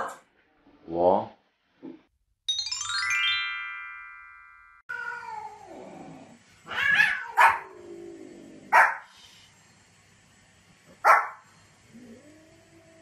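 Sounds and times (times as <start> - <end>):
bright rising chime: 2.5 - 4.9
cat yowling: 4.9 - 5.8, 6.6 - 7.8
dog barking sharply: 11.0 - 11.4.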